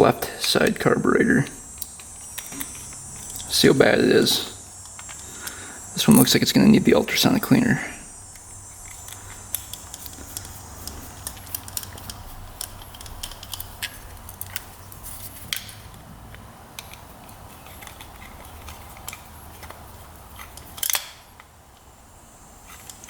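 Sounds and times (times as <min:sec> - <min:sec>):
metal parts and tools clicking: 0:01.4 - 0:06.4, 0:08.3 - 0:16.0, 0:16.8 - 0:21.5, 0:22.7 - 0:23.0.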